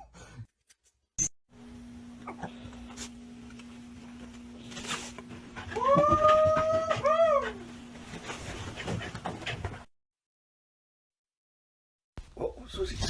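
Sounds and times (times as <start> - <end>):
steady low hum: 1.6 - 9.9.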